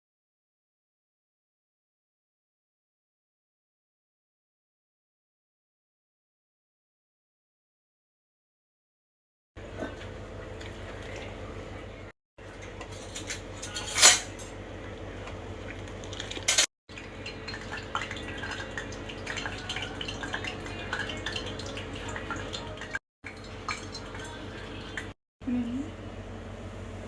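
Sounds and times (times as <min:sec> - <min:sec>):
metal utensils clinking on pots: 0:12.9 - 0:14.6, 0:16.4 - 0:25.1
utensils clattering: 0:12.9 - 0:14.6, 0:16.2 - 0:17.6, 0:22.6 - 0:24.4.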